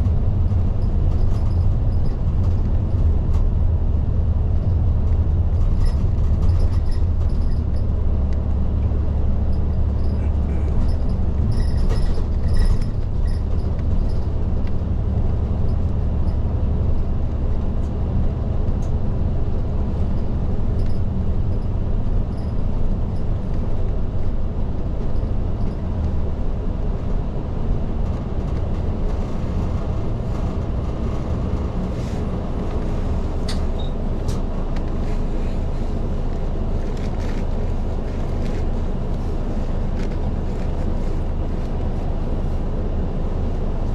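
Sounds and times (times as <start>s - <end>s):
bus engine and road rumble: 0.0s - 43.9s.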